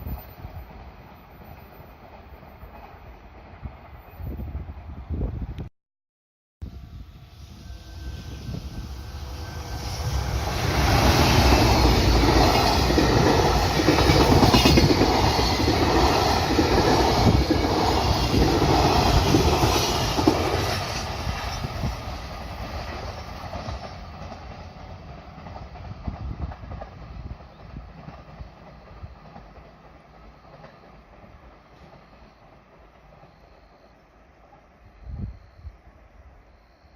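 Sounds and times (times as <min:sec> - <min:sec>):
freight train wheels clattering: 0:09.7 - 0:21.9.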